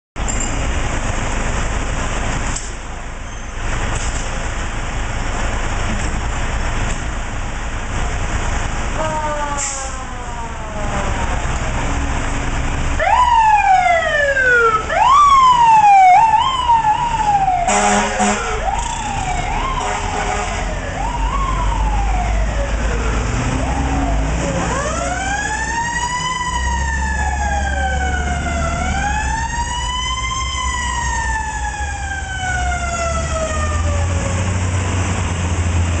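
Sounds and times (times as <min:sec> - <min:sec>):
engine rumble: 0:00.2 - 0:36.0
fire truck sirens wailing: 0:06.5 - 0:36.0
horn blast: 0:17.7 - 0:19.0, 0:19.7 - 0:20.8.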